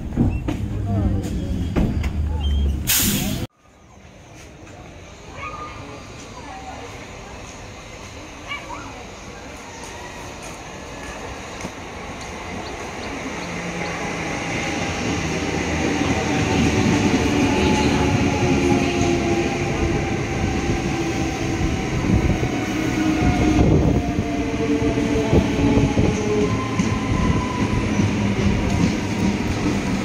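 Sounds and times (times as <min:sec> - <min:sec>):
train wheels rumbling on track: 0:00.0 - 0:03.5, 0:04.3 - 0:30.0.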